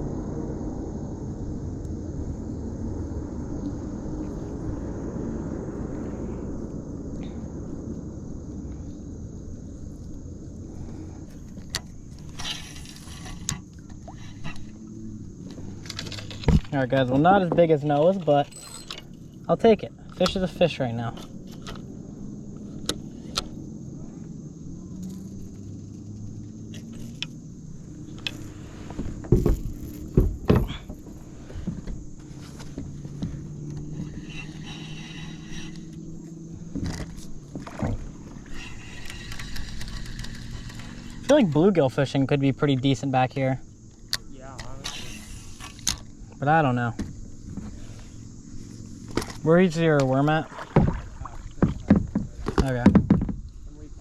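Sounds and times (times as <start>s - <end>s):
wind rumble on microphone: 0.0s - 17.8s
low steady hum: 0.0s - 54.0s
gear rustling: 27.8s - 32.7s
knocks and thumps on a kayak: 28.2s - 34.2s, 36.7s - 38.4s, 49.0s - 53.7s.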